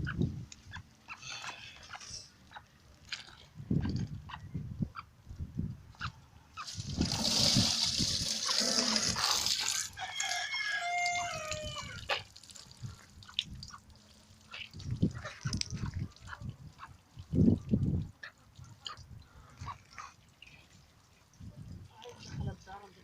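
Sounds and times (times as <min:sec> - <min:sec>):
water splashing from a tap: 0:06.7 - 0:10.3
rooster crowing: 0:09.9 - 0:12.0.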